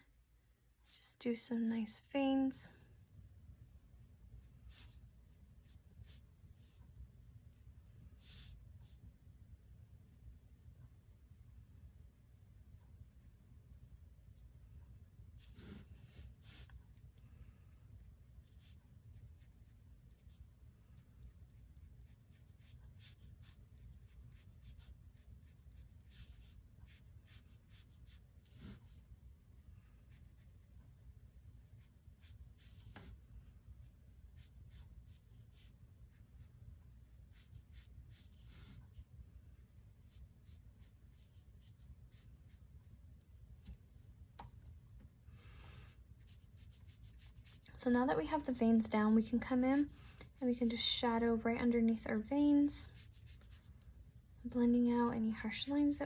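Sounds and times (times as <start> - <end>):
low room hum: 0.0 - 56.0
brush strokes on paper: 4.3 - 9.2, 15.3 - 51.0, 52.4 - 55.8.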